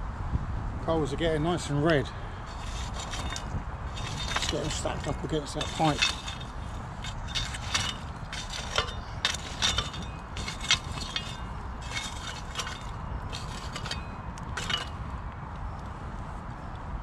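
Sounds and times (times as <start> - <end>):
steady low rumble: 0.0 - 16.4
charcoal lumps clinking together: 2.5 - 15.0.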